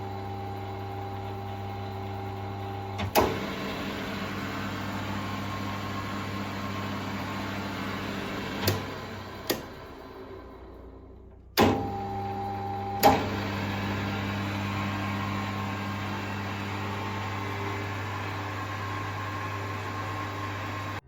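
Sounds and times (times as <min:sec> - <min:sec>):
lathe motor humming: 0:00.0 - 0:21.0
lathe switch click: 0:02.9 - 0:03.4, 0:08.6 - 0:09.8, 0:11.6 - 0:12.0, 0:13.0 - 0:13.4.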